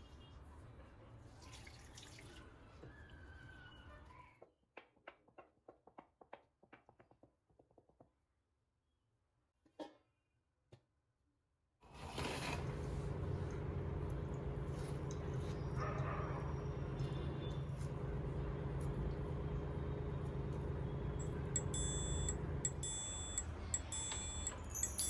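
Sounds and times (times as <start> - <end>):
steady mechanical hum: 12.6 - 25.0
light ringing clinks: 21.2 - 25.0.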